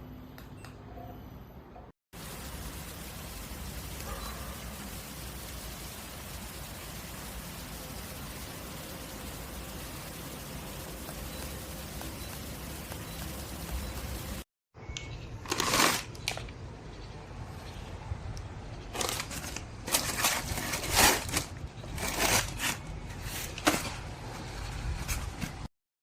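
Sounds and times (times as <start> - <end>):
steady hiss: 2.2 - 14.5
rustling and crinkling handling: 18.9 - 25.7.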